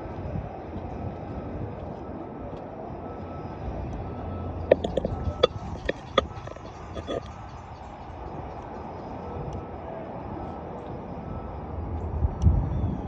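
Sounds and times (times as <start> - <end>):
low background rumble: 4.0 - 9.2.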